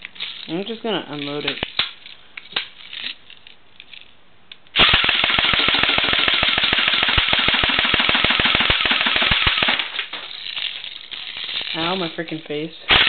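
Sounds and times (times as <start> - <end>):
airsoft gun firing full-auto: 4.8 - 10.1.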